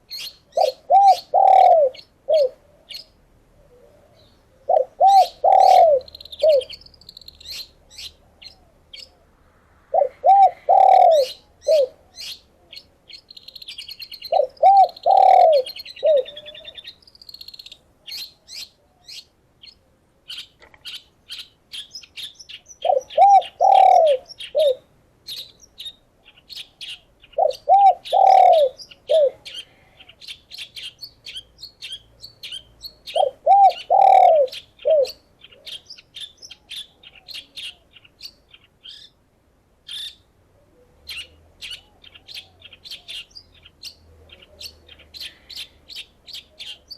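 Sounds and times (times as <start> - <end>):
small birds chirping and twittering: 0.0 - 9.4, 10.0 - 46.9
dove cooing: 0.2 - 6.8, 9.9 - 12.8, 14.2 - 16.9, 22.8 - 25.5, 26.6 - 31.4, 32.5 - 35.8.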